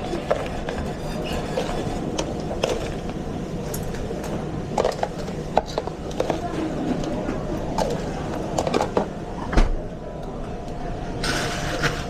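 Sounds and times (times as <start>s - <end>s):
pans and plates clattering: 0.0s - 3.0s
kitchen low rumble: 0.0s - 12.0s.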